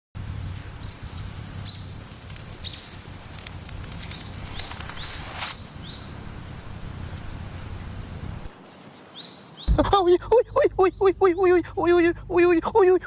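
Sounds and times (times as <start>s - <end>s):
steady low rumble: 9.7s - 13.0s.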